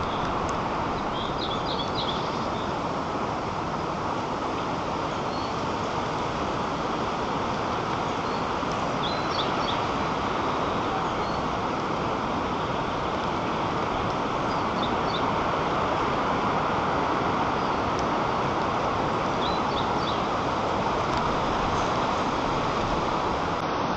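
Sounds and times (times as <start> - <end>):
songbird chirping: 0.0 - 2.8, 8.1 - 11.5, 19.4 - 20.3
wind rushing through treetops: 0.0 - 23.9.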